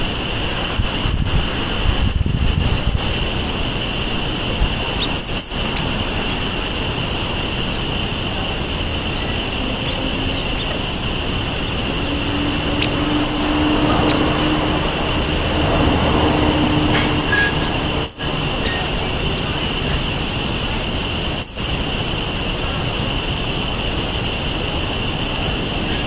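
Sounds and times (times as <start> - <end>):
outdoor background noise: 0.0 - 26.0
high-pitched hum: 3.1 - 26.0
high bird chirps: 8.9 - 15.2.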